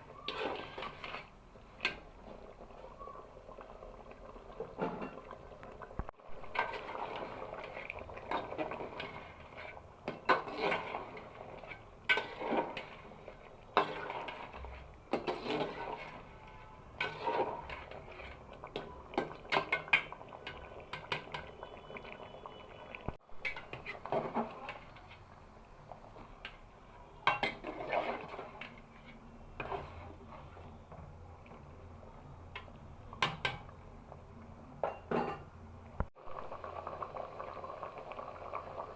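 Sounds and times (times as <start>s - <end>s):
curry bubbling: 0.0s - 34.6s, 36.0s - 38.9s
spoon scraping a cooking pot: 0.2s - 2.0s, 6.4s - 21.6s, 27.2s - 30.5s.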